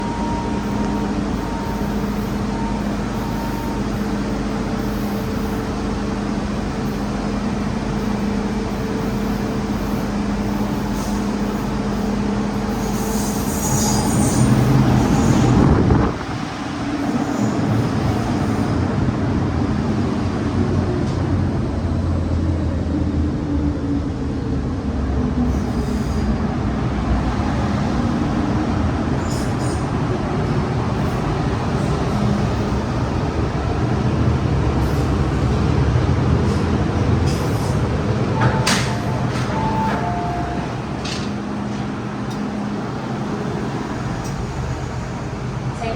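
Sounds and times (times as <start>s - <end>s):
electric train motors humming: 26.4s - 45.9s.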